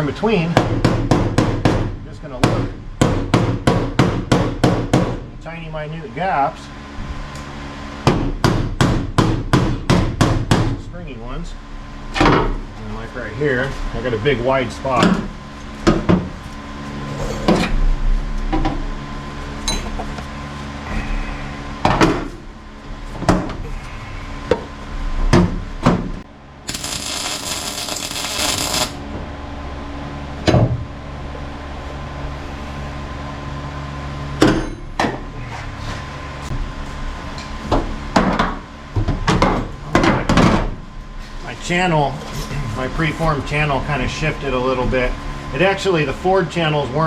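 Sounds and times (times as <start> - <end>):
steady shop hum: 0.0 - 47.0
hissing noise: 26.7 - 29.0.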